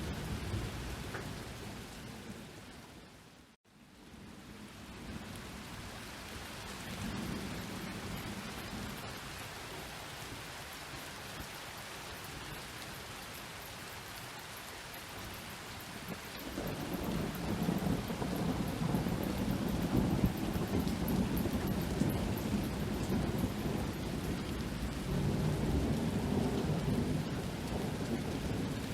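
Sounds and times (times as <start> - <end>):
rain pattering: 0.0 - 28.9
rolling thunder: 16.4 - 28.9.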